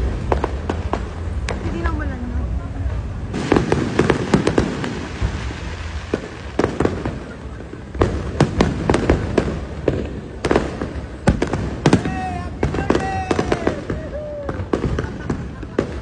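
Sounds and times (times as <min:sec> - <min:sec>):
low rumble: 0:00.0 - 0:12.7
fireworks cracking and banging: 0:00.0 - 0:16.0.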